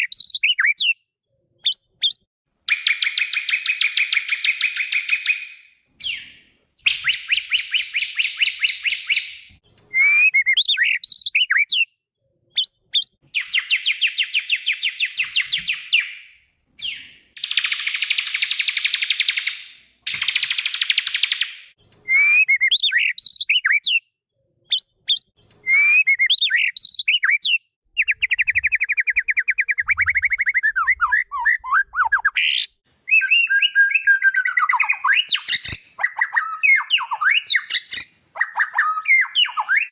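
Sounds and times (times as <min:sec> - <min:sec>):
sliding whistled bird notes: 0:06.0 - 0:11.8, 0:24.7 - 0:39.9
bird singing rattling trills: 0:33.1 - 0:39.9.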